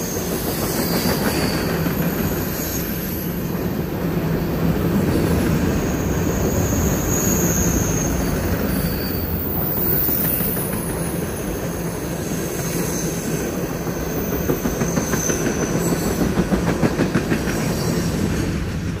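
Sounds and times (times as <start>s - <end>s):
faint high wheel squeal: 0.0s - 3.6s, 5.2s - 16.3s
freight train wheels rumbling: 0.0s - 19.0s.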